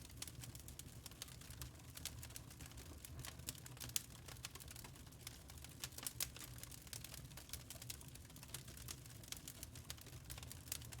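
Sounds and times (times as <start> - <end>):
low rumble of burning: 0.0 - 11.0.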